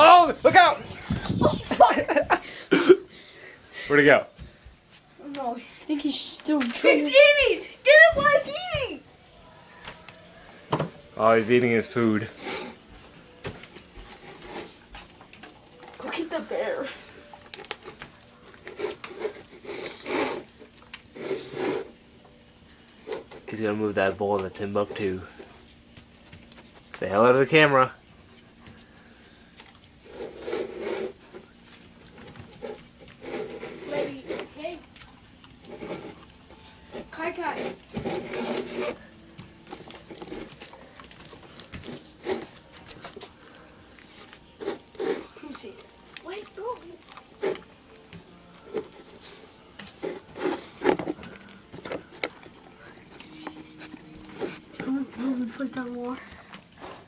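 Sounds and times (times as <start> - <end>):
food bowl scraping and knocking: 18.6 - 22.0, 30.0 - 31.5, 32.2 - 34.7, 35.6 - 40.7, 44.0 - 45.4, 48.6 - 52.5
puppy chewing: 27.9 - 57.0.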